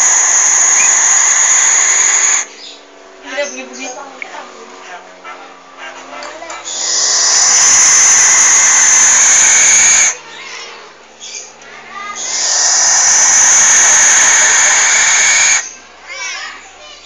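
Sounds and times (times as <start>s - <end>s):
owl hissing screeches: 0.0s - 2.5s, 6.7s - 10.2s, 12.1s - 15.8s.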